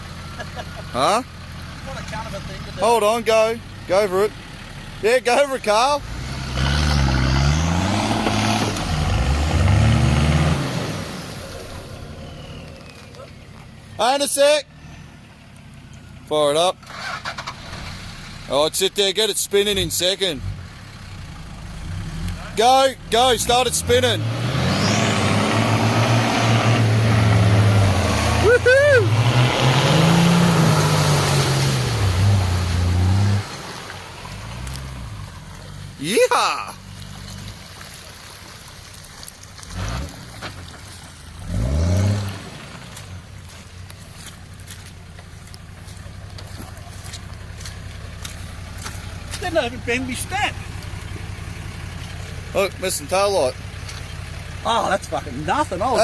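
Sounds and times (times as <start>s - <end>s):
tyres churning through mud: 0.0s - 56.0s
diesel engine revving hard: 3.9s - 12.8s, 21.3s - 35.8s, 39.7s - 40.4s, 41.4s - 43.0s.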